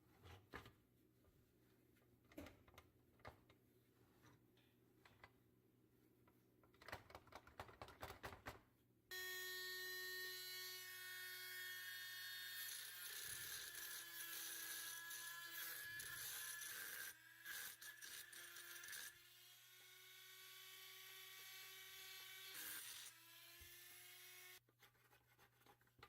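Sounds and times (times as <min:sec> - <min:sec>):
power tool buzzing whine: 0:09.1 - 0:17.0.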